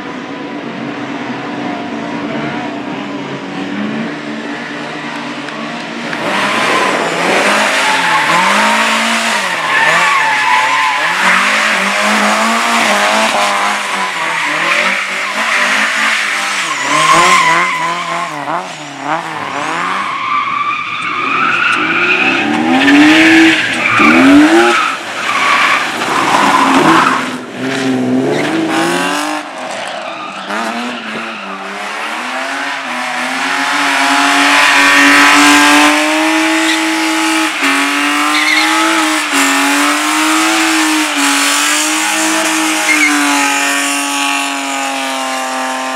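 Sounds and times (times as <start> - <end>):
car engine revving: 1.7 - 45.9
tyres squealing: 7.2 - 27.2, 36.2 - 39.7.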